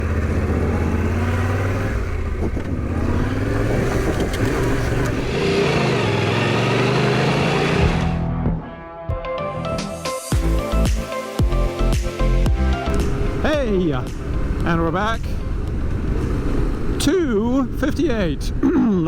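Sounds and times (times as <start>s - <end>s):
motorcycle engine revving: 0.0s - 8.4s, 12.8s - 17.0s.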